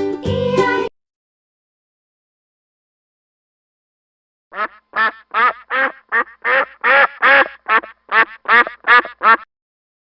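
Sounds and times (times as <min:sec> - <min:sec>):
duck quacking: 0:04.5 - 0:09.5.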